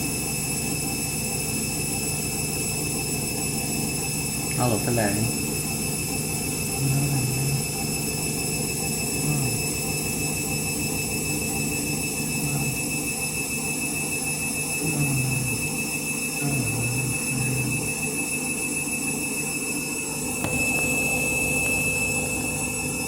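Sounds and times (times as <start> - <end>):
washing machine motor spinning: 0.0 - 23.0.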